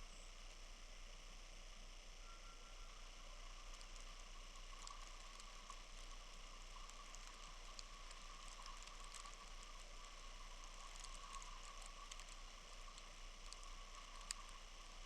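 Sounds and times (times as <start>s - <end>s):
faint steady hiss: 0.0s - 15.0s
tiny scattered ticks: 0.0s - 15.0s.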